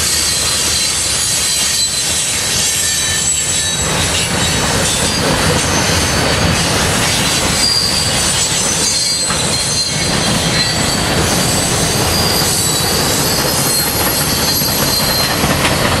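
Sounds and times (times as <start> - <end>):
high wheel squeals: 0.0 - 16.0
train wheels rumbling on rails: 0.0 - 16.0.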